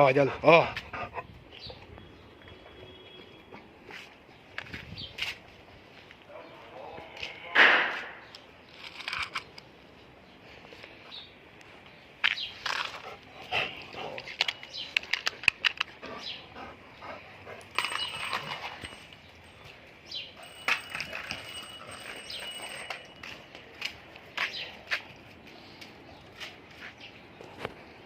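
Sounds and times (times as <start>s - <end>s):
sharp loud sound: 7.6s - 8.2s.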